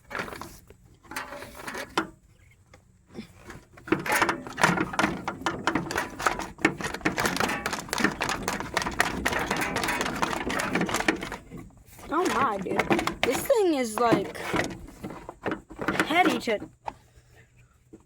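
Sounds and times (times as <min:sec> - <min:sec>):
metallic clicking and rattling: 0:03.8 - 0:16.6.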